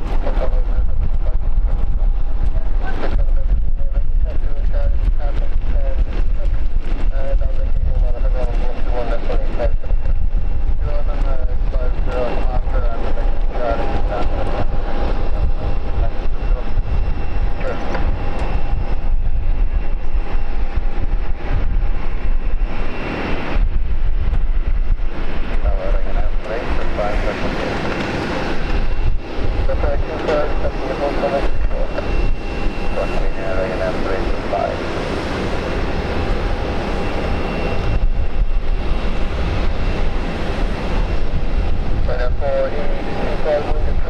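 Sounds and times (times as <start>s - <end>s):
jet engines whining: 0.0s - 44.0s
wind buffeting microphone: 0.0s - 44.0s
faint high whine: 25.6s - 39.7s.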